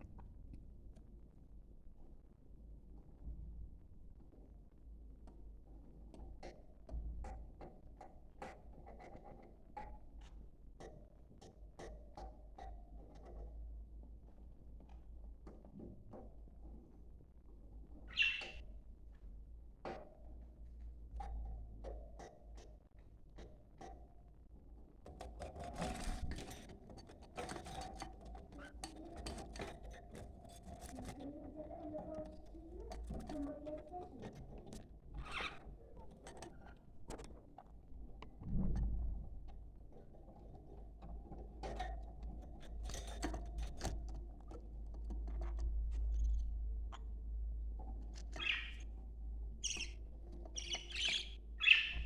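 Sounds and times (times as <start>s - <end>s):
budgerigar chirps and clicks: 18.1s - 18.6s, 48.4s - 48.8s, 49.6s - 50.0s, 50.6s - 52.0s.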